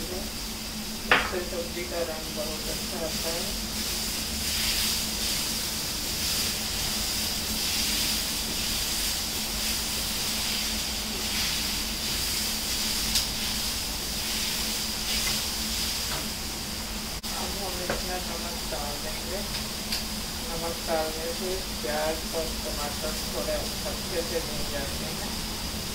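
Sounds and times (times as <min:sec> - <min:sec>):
food sizzling in oil: 0:00.0 - 0:25.9
steady low hum: 0:00.0 - 0:25.9.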